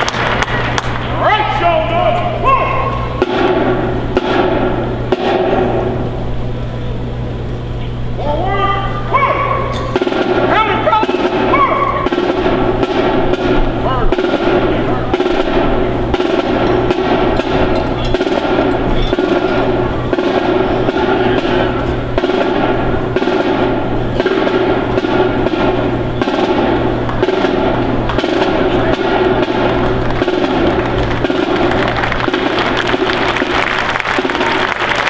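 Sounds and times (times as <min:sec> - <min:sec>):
snare drum cadence with rolls: 0:00.0 - 0:01.1, 0:02.8 - 0:06.1, 0:09.8 - 0:35.0.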